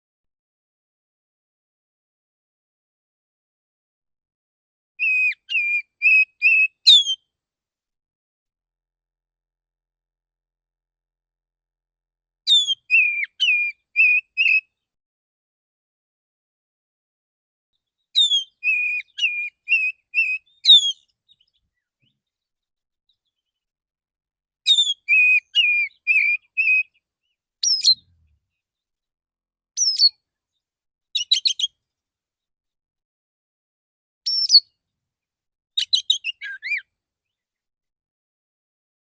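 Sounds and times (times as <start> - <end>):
magpie-robin singing: 5.0 - 7.2, 12.5 - 14.7, 18.0 - 22.5, 24.6 - 28.6, 29.8 - 30.6, 31.2 - 31.8, 34.3 - 34.8, 35.8 - 37.5.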